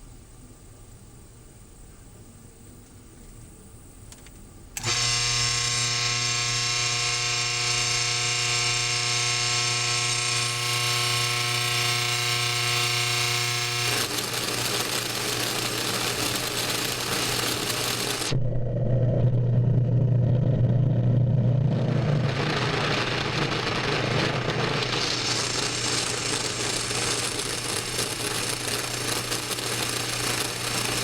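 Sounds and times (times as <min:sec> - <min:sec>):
spindle motor whining: 0:04.8 - 0:18.4, 0:22.2 - 0:31.0.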